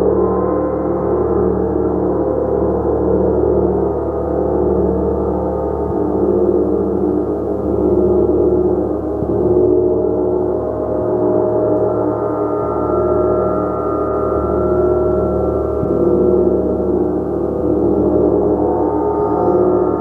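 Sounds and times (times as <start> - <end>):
gong played: 7.8 - 20.0.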